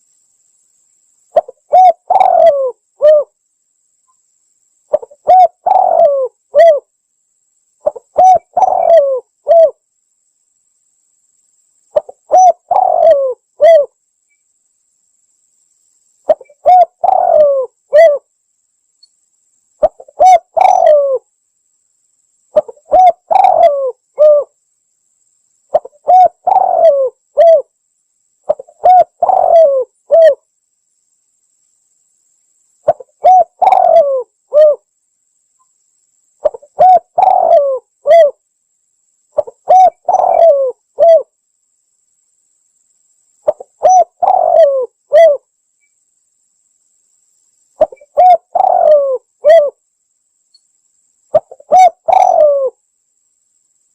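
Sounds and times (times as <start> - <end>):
dove cooing: 1.4 - 3.4, 4.9 - 6.9, 7.8 - 9.8, 11.9 - 14.0, 16.3 - 18.3, 19.8 - 21.3, 22.6 - 24.5, 25.7 - 27.7, 28.5 - 30.4, 32.8 - 34.9, 36.4 - 38.4, 39.4 - 41.3, 43.4 - 45.4, 47.8 - 49.8, 51.3 - 52.8.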